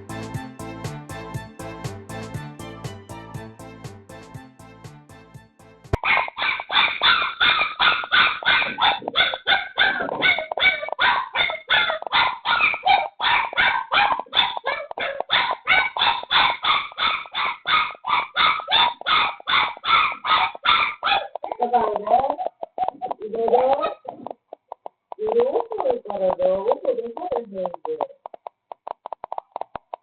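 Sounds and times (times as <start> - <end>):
puppy yelping and barking: 6.0 - 21.5.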